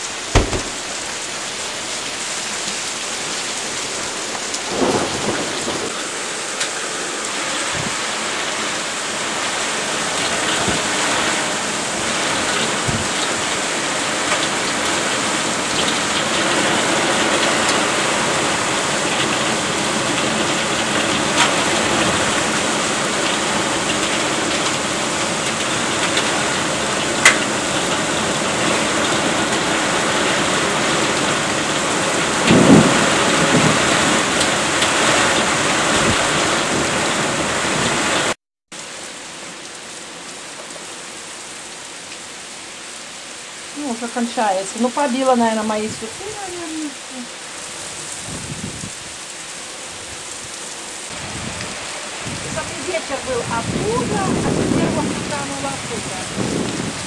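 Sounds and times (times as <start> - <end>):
heavy rain pouring: 0.0 - 57.0
dull thumps: 0.3 - 1.2
sharp thunder crack: 0.3 - 1.2.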